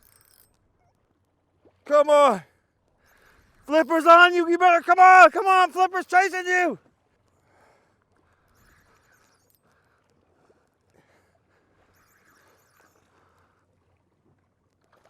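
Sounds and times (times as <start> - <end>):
small ticks: 8.2 - 10.2, 11.8 - 13.6.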